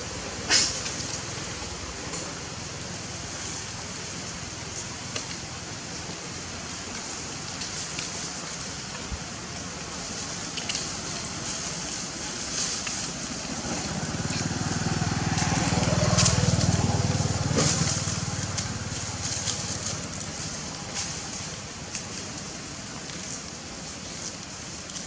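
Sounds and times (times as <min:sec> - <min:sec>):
steady hiss: 0:00.0 - 0:25.0
crackles and clicks: 0:06.9 - 0:25.0.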